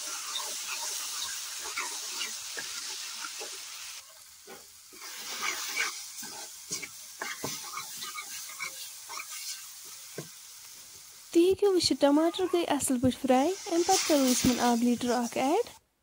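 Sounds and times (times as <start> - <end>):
masala sizzling in a pan: 0.0 - 15.8
spoon scraping a metal pan: 4.5 - 9.7, 12.2 - 12.7.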